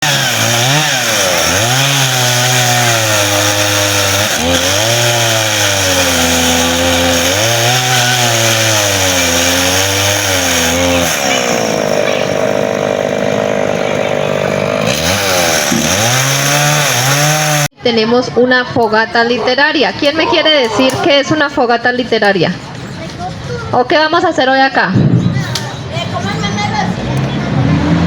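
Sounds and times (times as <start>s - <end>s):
small engine revving: 0.0s - 17.7s, 26.9s - 28.0s.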